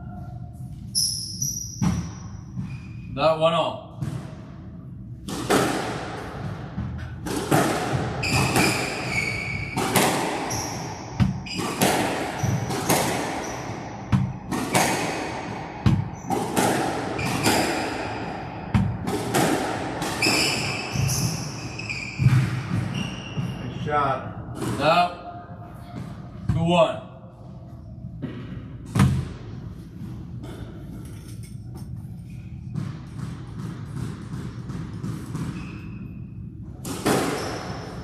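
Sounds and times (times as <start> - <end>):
shoes squeaking on court floor: 0.0 - 3.2, 7.9 - 16.5, 17.1 - 18.2, 20.0 - 23.9, 34.8 - 36.3, 37.1 - 38.0
squash ball hitting racquets: 1.2 - 2.9, 3.9 - 23.8, 24.4 - 25.2, 28.1 - 31.0, 32.2 - 38.0
ball smacking walls: 5.3 - 21.4.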